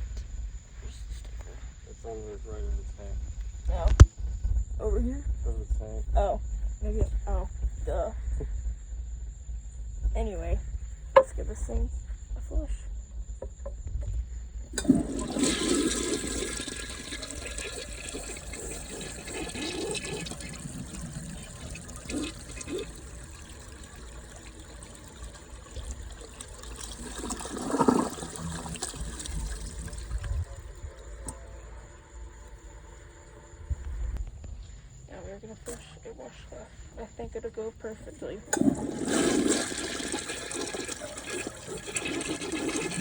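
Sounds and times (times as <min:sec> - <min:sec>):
toilet flushing: 0:14.7 - 0:34.2, 0:38.5 - 0:43.0.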